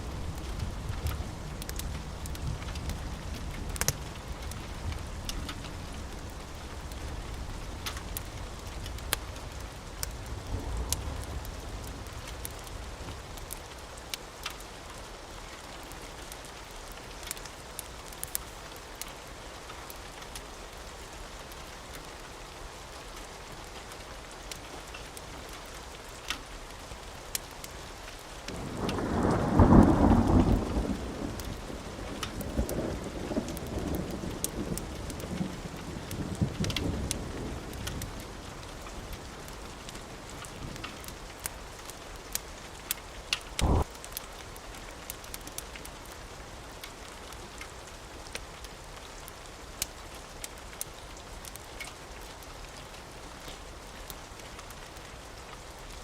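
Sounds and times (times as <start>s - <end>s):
steady rain: 0.0s - 56.0s
thunder rumbling: 28.5s - 38.4s, 43.6s - 43.9s
loud thunderclap: 43.6s - 43.9s.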